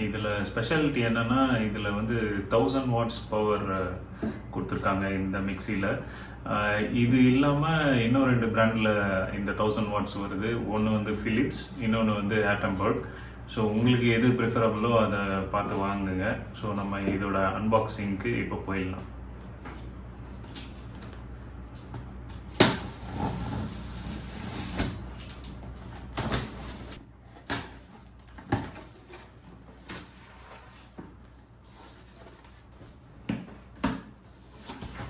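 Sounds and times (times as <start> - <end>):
cardboard rustling: 22.4 - 35.0.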